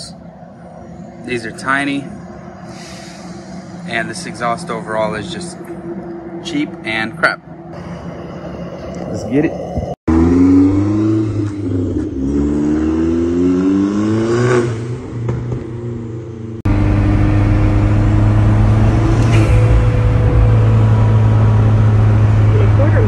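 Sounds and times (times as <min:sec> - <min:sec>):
low engine drone inside car: 0:00.0 - 0:10.0, 0:16.6 - 0:23.0
car engine accelerating: 0:01.0 - 0:23.0.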